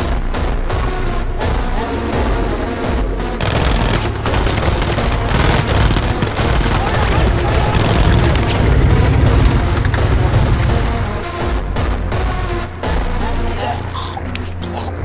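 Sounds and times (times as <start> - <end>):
rapid machine gun fire: 3.4 - 11.4
low rumbling booms: 4.1 - 12.6.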